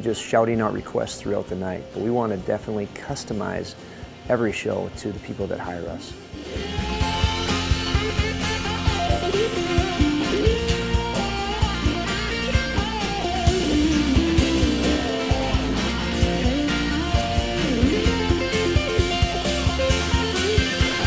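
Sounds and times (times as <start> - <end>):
lead guitar with bent notes: 6.2 - 21.0
rock band playing: 6.4 - 21.0.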